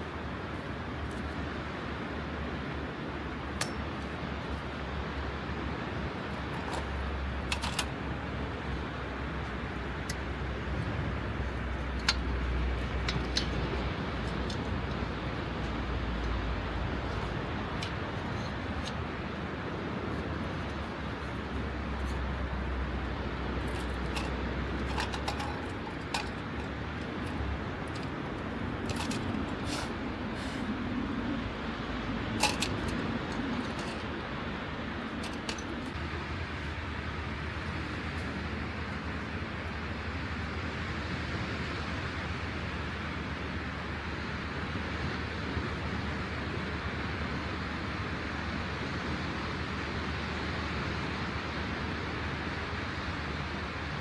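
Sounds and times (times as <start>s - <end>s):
rain and sea hiss: 29.7s - 32.4s.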